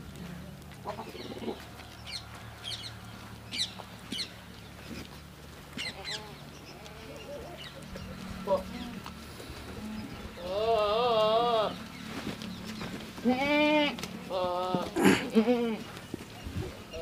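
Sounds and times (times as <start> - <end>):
low steady hum: 0.0 - 17.0
birds chirping: 0.3 - 17.0
faint low animal calls: 5.8 - 11.8.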